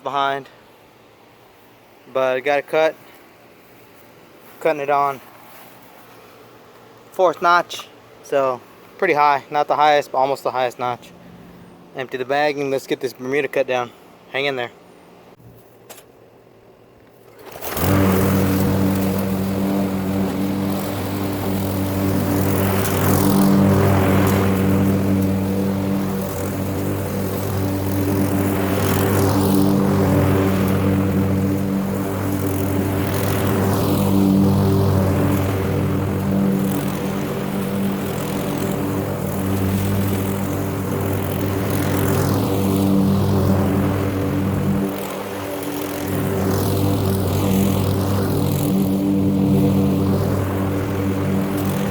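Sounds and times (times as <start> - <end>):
lawn mower engine running: 17.0 - 51.9.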